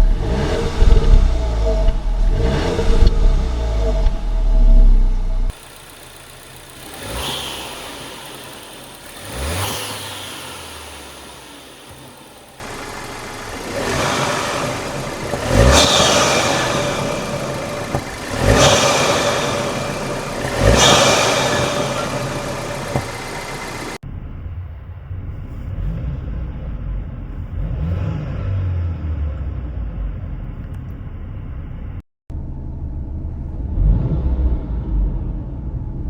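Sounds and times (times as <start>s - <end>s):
car engine revving: 0.0s - 4.8s, 5.5s - 24.0s
low engine rumble: 0.8s - 27.4s
intake rush: 5.5s - 24.0s.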